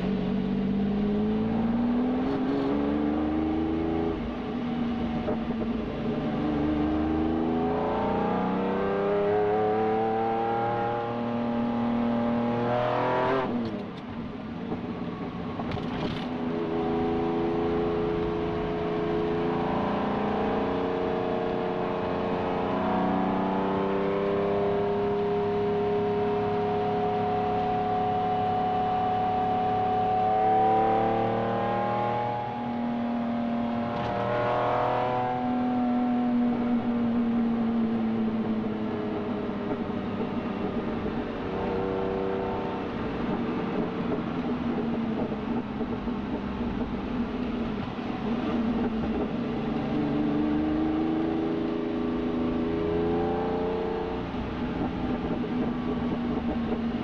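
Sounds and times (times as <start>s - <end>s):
car engine accelerating and revving: 0.0s - 57.0s.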